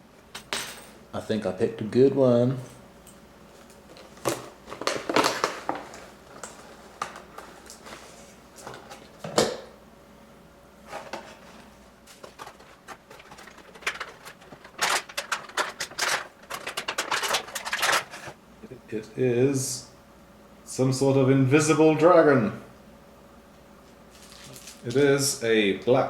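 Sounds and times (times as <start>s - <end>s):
box packaging crinkling: 4.0s - 8.1s, 12.1s - 18.4s, 24.2s - 24.9s.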